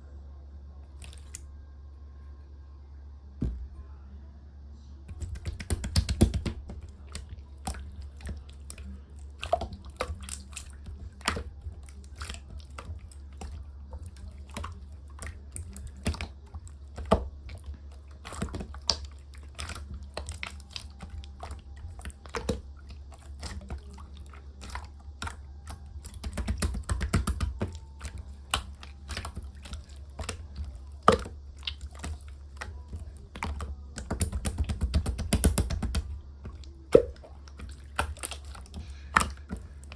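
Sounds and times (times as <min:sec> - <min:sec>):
steady low hum: 0:00.0 - 0:39.9
slime squeezed wet clicks: 0:01.0 - 0:01.4.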